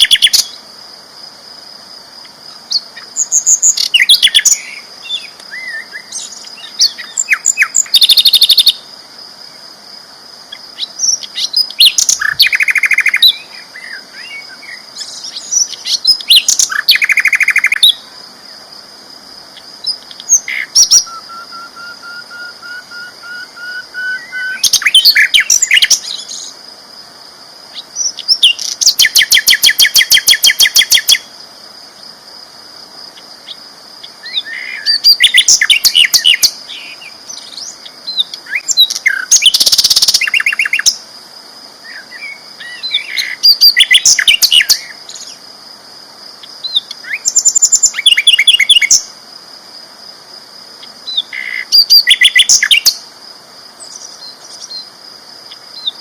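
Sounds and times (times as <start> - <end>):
flycatcher singing: 0.0 - 0.6, 2.5 - 8.9, 10.5 - 18.0, 19.6 - 26.6, 27.7 - 31.3, 33.4 - 41.0, 41.9 - 45.4, 46.4 - 49.1, 50.8 - 53.0.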